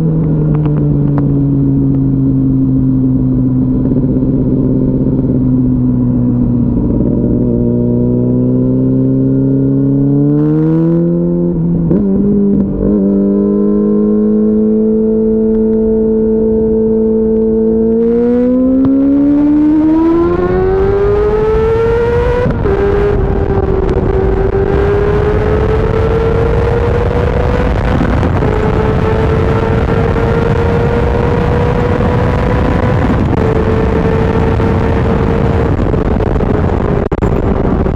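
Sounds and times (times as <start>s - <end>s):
motorcycle engine at speed: 0.0s - 37.9s
wind rush: 15.3s - 37.9s.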